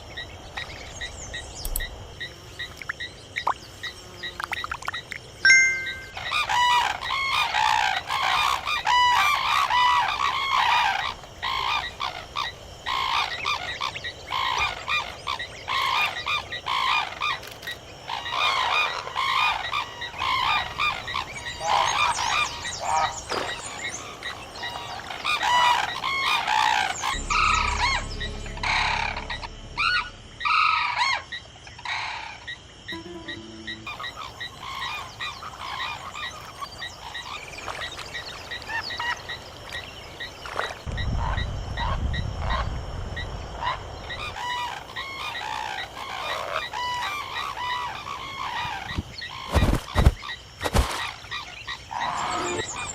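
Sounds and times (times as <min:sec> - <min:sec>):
birds honking: 0:18.1 - 0:37.4, 0:43.3 - 0:52.9
low hum: 0:27.1 - 0:31.3.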